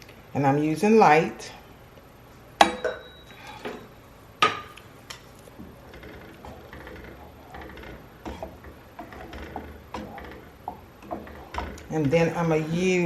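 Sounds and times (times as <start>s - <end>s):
kitchenware clinking: 2.6s - 4.9s.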